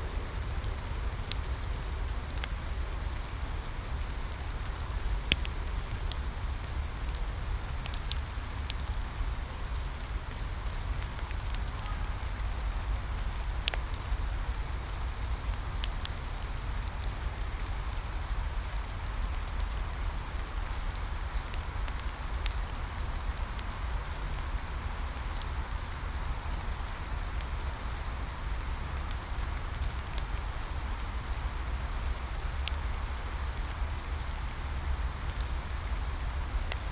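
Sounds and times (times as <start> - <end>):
low rumble: 0.0 - 2.7
rain hissing: 0.0 - 36.9
wood fire crackling: 0.0 - 36.9.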